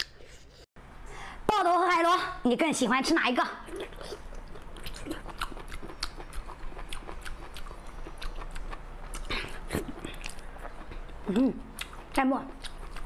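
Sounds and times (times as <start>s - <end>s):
chewing with wet mouth clicks: 3.7s - 13.0s.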